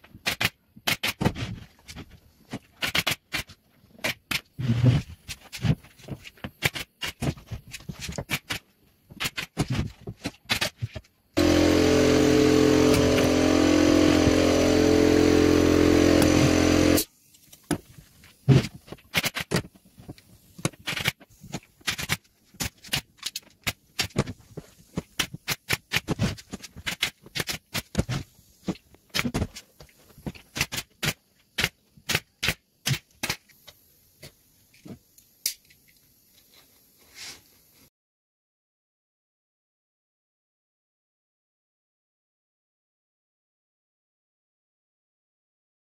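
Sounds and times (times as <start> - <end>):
machine running steadily: 11.4 - 17.1.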